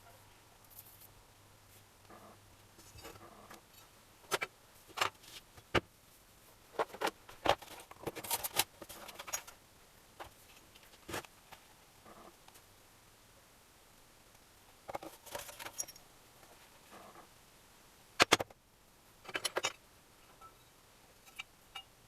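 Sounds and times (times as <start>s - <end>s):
metal tools clattering on workbench: 14.9s - 16.0s, 19.3s - 19.8s.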